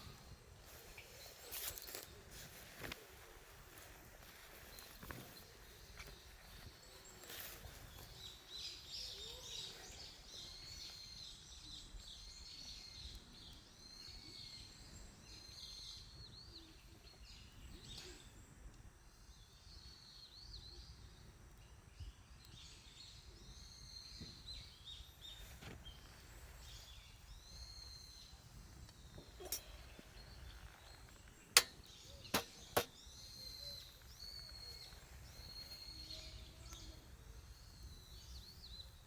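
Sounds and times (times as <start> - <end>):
small birds chirping: 0.0 - 39.0
sharp pops: 31.2 - 33.1.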